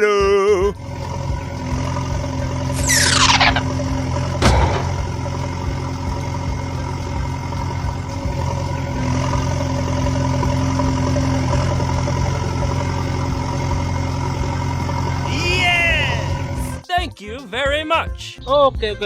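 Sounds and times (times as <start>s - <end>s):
tractor engine idling: 0.0s - 16.8s
short falling-pitch sound: 2.8s - 3.8s.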